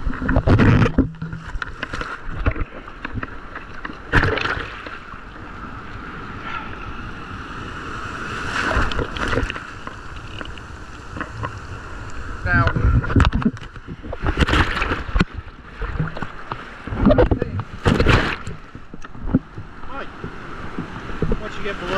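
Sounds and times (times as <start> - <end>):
wind on microphone: 0.0 - 3.3, 6.2 - 21.8
water splashing: 0.0 - 6.8, 7.7 - 21.9
waves breaking: 0.0 - 21.9.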